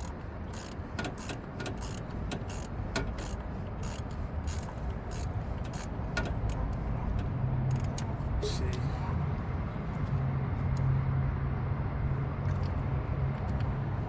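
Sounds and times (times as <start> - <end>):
tools clicking and knocking: 0.0 - 6.8, 7.7 - 8.2.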